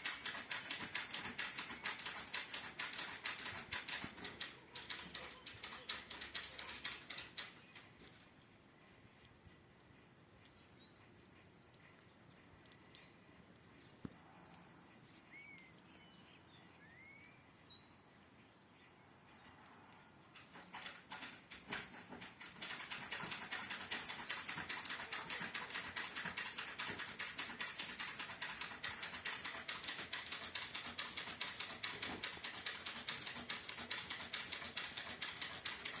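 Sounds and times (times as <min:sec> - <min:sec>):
bird chirps: 0:10.4 - 0:19.6.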